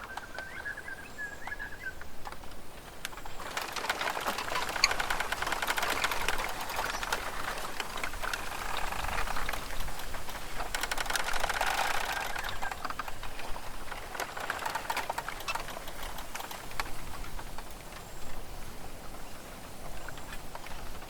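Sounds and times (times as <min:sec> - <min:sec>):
dry ticks: 0:00.0 - 0:21.0
soft rustling hiss: 0:00.0 - 0:21.0
fast clicking rattle: 0:02.2 - 0:18.0.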